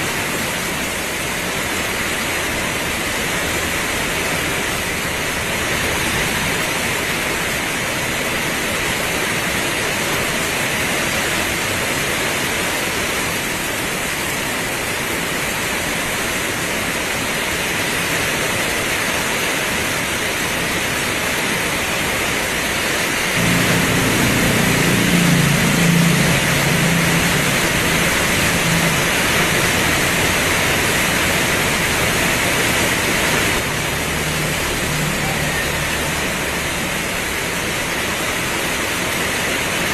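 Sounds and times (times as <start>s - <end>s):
heavy rain pouring: 0.0s - 39.9s
low rumble: 23.4s - 35.4s.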